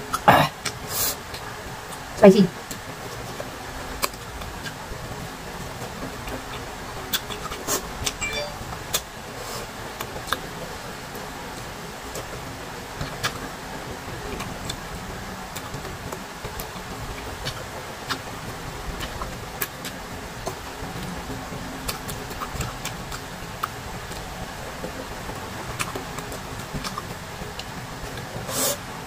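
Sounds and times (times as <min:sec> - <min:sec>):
background hiss: 0:28.4 - 0:29.0.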